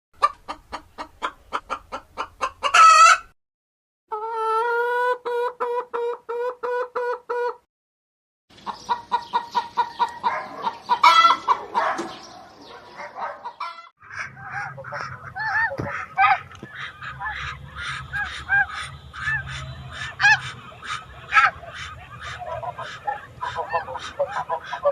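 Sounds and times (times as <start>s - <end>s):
chickens clucking: 0.2s - 3.3s, 4.1s - 7.6s, 8.5s - 24.9s.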